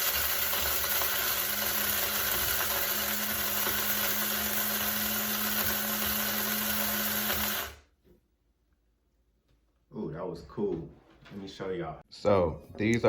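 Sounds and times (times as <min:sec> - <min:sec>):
coffee grinder whirring: 0:00.0 - 0:07.9.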